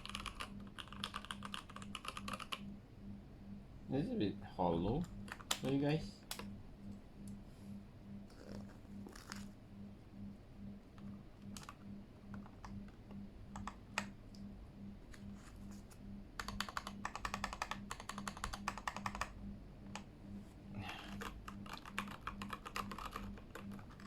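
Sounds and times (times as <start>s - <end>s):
mechanical keyboard typing: 0.0s - 2.6s, 5.0s - 6.4s, 11.0s - 14.1s, 16.4s - 20.1s, 21.1s - 24.0s.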